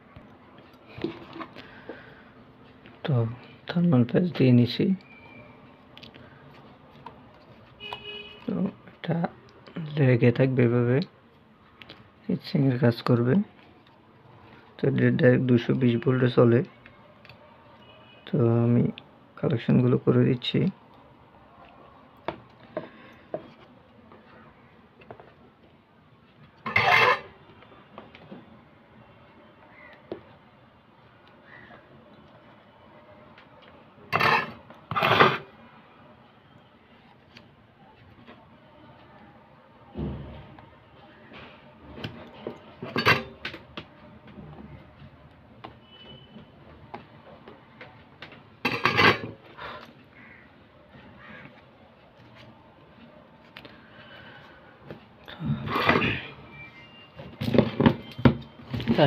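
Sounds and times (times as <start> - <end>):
tools and parts handled on workbench: 0.6 - 2.0, 25.0 - 28.4, 33.4 - 35.5, 41.3 - 43.8, 44.5 - 50.0, 57.1 - 59.0.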